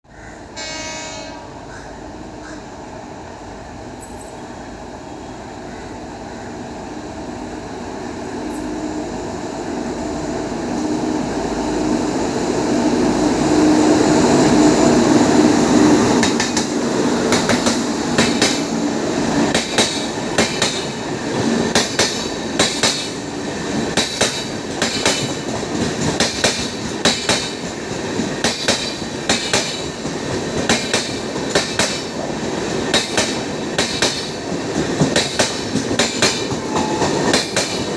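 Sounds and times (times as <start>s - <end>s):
train rumble: 0.4s - 37.9s
train wheels clicking over rail joints: 16.0s - 37.9s.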